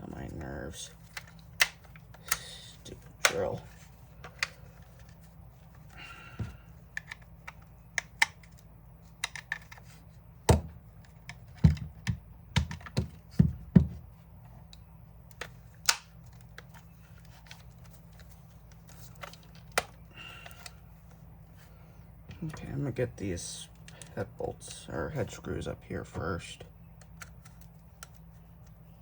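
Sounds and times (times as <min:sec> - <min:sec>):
plastic drill parts clicking: 0:05.8 - 0:09.9.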